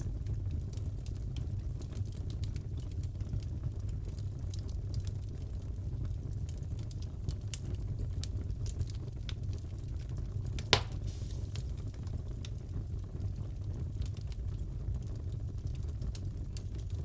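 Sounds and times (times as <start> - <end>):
wood fire crackling: 0.0 - 17.0
sharp fire pop: 10.6 - 12.0.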